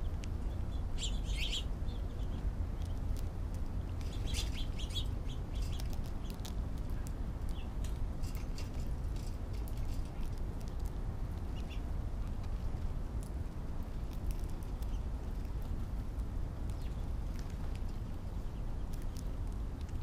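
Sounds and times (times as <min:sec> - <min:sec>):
bird chirps: 0:00.0 - 0:03.0, 0:04.0 - 0:06.3
squirrel cracking seeds: 0:00.0 - 0:20.0.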